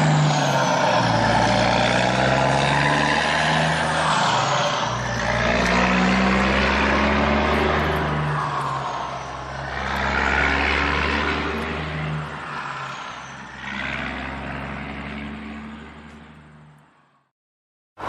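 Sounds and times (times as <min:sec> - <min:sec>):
vehicle engine humming: 0:00.0 - 0:17.2.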